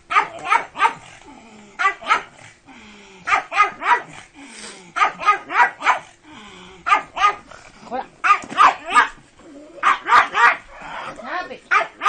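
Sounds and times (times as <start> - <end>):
small dog barking: 0.1 - 1.1, 1.8 - 2.4, 3.3 - 4.2, 5.0 - 6.1, 6.9 - 7.5, 8.2 - 9.2, 9.8 - 10.7, 11.7 - 12.0.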